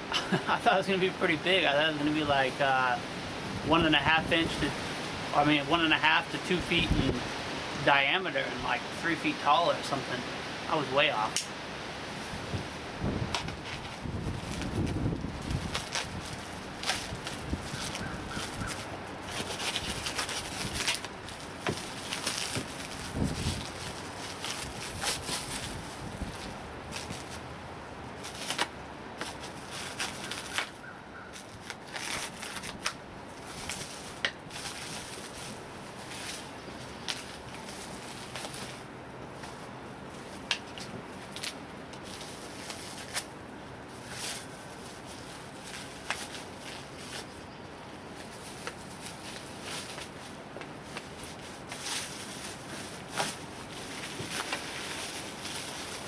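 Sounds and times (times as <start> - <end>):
packaging crackling and rustling: 12.1 - 56.0.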